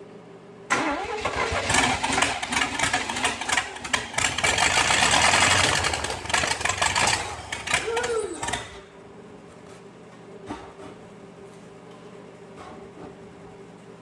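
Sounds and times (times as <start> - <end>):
starter motor cranking: 0.7 - 8.8
engine running loud and uneven: 1.2 - 8.8.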